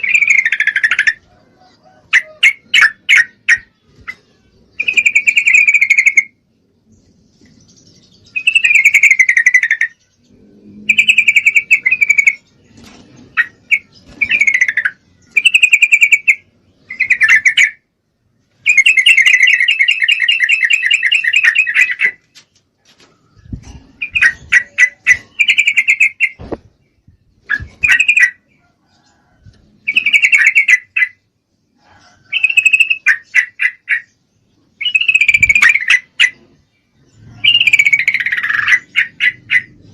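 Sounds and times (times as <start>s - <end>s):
bird rapid trill: 0.0s - 1.2s, 2.2s - 6.4s, 7.6s - 17.8s, 18.6s - 22.2s, 23.4s - 26.8s, 27.4s - 28.5s, 29.8s - 31.2s, 32.3s - 34.1s, 34.8s - 36.6s, 37.2s - 39.9s
bulbul bubbly calls: 34.8s - 36.5s.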